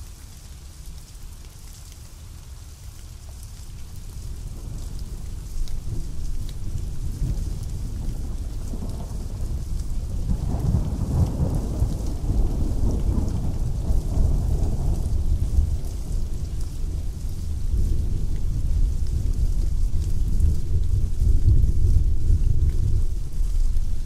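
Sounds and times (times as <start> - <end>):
pouring rain: 0.0 - 24.0
thunder rolling: 5.8 - 24.0.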